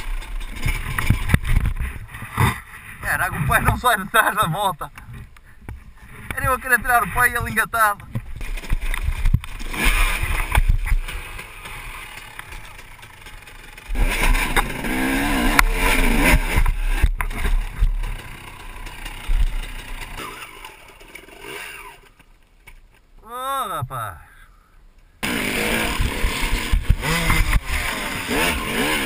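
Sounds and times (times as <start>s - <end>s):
dirt bike engine revving: 8.4s - 22.2s, 25.2s - 29.0s.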